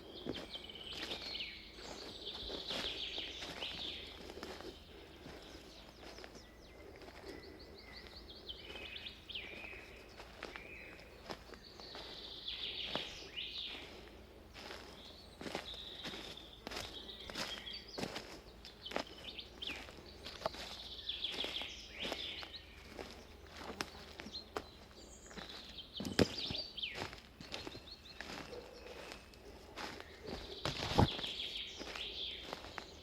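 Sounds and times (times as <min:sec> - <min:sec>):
footsteps crunching on forest path: 0:00.0 - 0:33.0
songbirds singing trills: 0:00.0 - 0:33.0.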